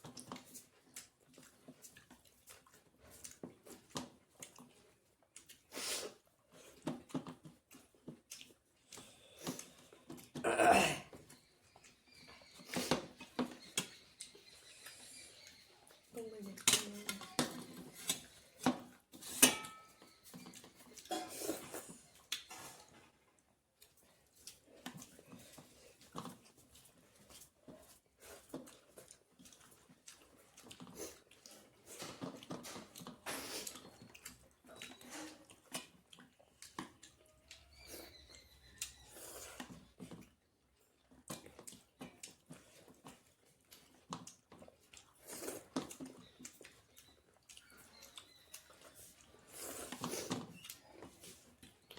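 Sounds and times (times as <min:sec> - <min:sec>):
chewing: 0:00.0 - 0:51.9
cutlery clicking and scraping plate: 0:19.2 - 0:20.0.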